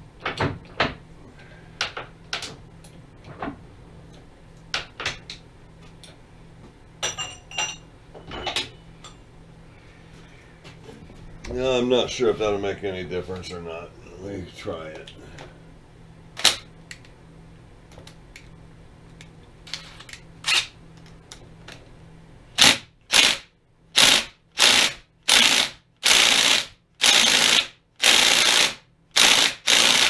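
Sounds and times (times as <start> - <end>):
impact wrench bursts: 22.6 - 30.0.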